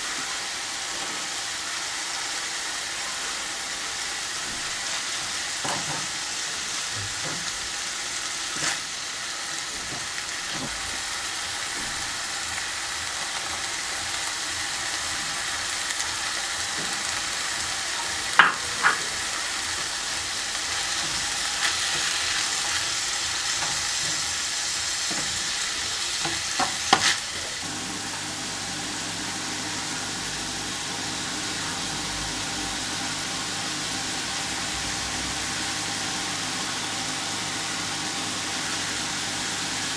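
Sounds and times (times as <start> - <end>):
food sizzling in a pan: 0.0 - 39.9
utensil knocking against pan: 18.4 - 19.2.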